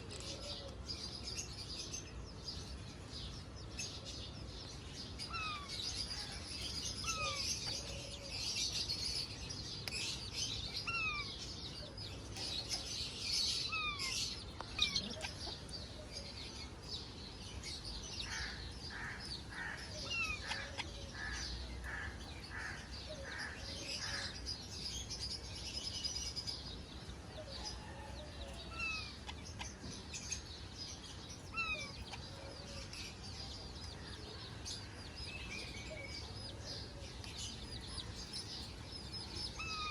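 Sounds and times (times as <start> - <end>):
evenly spaced bird calls: 0.0 - 39.9
parrots chattering and chirping: 6.9 - 7.9, 10.8 - 11.5, 12.3 - 16.0, 18.2 - 24.4, 31.4 - 32.3, 37.6 - 39.9.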